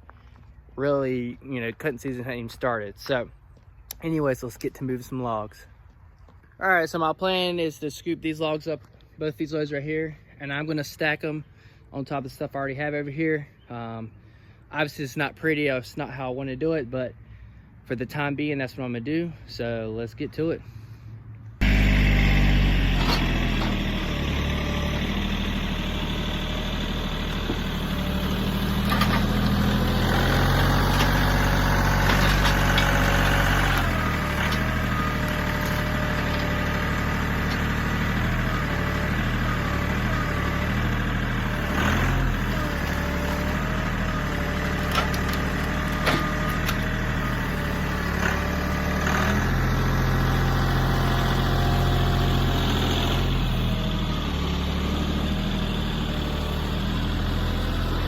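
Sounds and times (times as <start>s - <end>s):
tractor diesel engine running: 20.7s - 58.0s.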